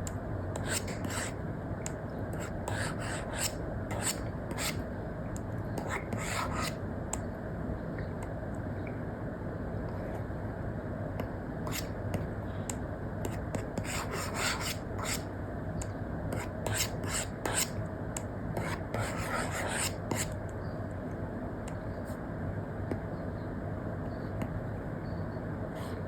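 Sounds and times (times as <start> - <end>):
stylus scratching on screen: 0.6 - 1.4, 2.4 - 4.8, 5.8 - 6.8, 11.6 - 12.0, 13.3 - 15.3, 16.4 - 17.8, 18.6 - 20.4.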